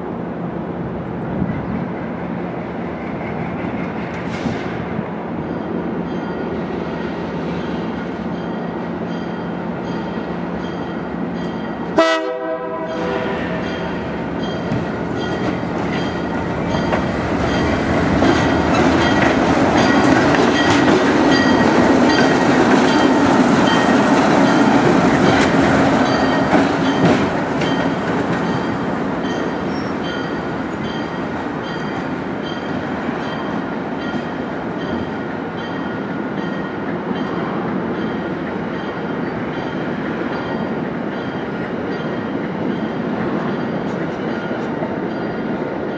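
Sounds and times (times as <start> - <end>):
train rolling past: 0.0 - 45.9
train horn blast: 12.0 - 13.8
wheels clicking over rail joints: 14.6 - 28.8.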